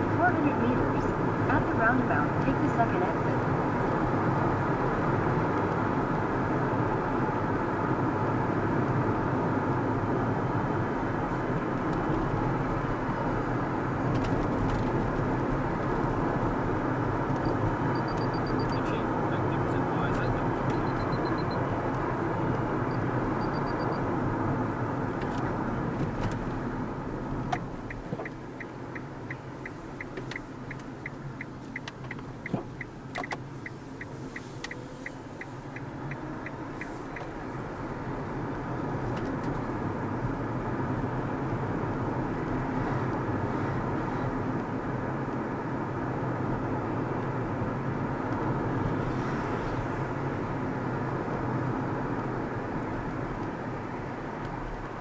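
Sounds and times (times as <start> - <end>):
car road and engine noise: 0.0 - 55.0
turn-signal indicator ticking: 17.2 - 19.2, 20.0 - 24.3, 27.4 - 37.4.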